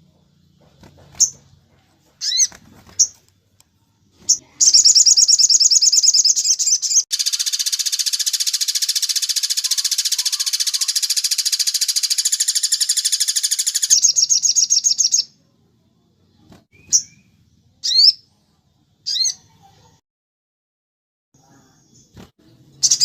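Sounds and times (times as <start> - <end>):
bird trilling: 2.2 - 3.2, 4.3 - 15.3, 16.7 - 18.2, 19.1 - 19.4
short sharp bird chirps: 4.3 - 15.3.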